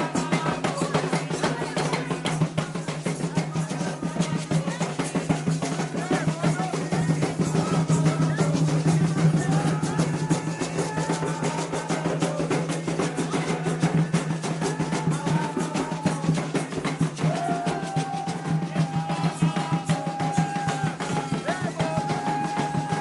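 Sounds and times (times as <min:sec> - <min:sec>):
fast hand drumming: 0:00.0 - 0:23.0
voices singing long notes: 0:17.2 - 0:23.0.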